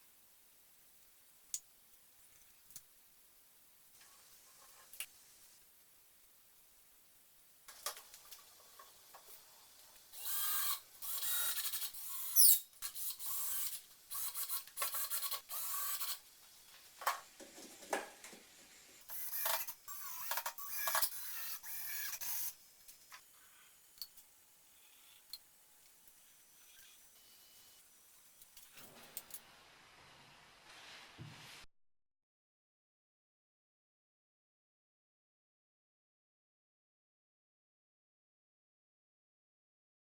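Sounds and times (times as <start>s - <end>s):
scraping and rubbing noises: 30.0s - 31.7s.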